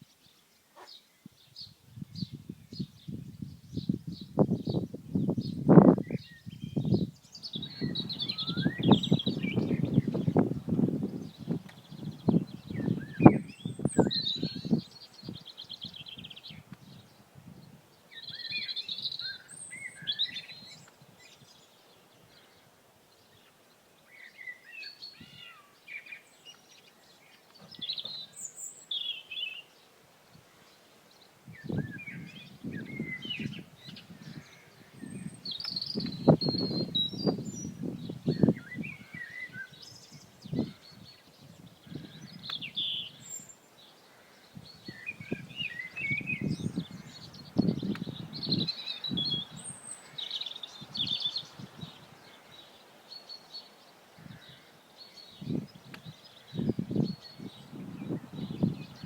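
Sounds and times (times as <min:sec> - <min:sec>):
small birds chirping and singing: 0:00.0 - 0:59.0
wind buffeting microphone: 0:01.2 - 0:17.9, 0:31.5 - 0:43.4, 0:44.5 - 0:50.0, 0:50.7 - 0:52.4, 0:55.3 - 0:59.0.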